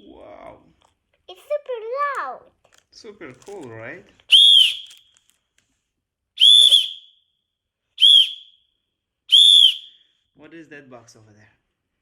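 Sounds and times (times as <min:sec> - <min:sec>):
toy whistle blasts: 0:04.3 - 0:05.0, 0:06.4 - 0:07.2, 0:08.0 - 0:08.6, 0:09.3 - 0:10.0.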